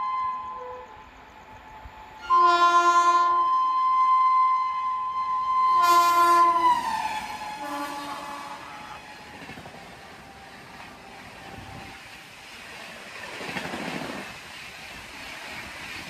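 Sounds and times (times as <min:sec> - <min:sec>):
locomotive air horn: 0:00.0 - 0:01.0, 0:02.2 - 0:09.4.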